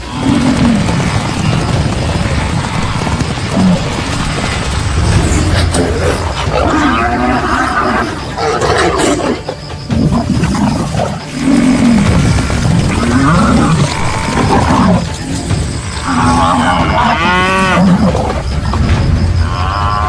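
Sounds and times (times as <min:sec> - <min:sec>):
buffalo bellowing: 0:10.1 - 0:18.4.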